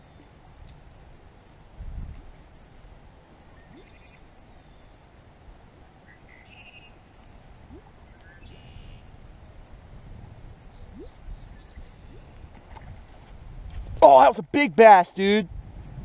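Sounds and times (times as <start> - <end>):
wind rumble on microphone: 0.0 - 4.6, 7.0 - 14.1, 15.4 - 16.0.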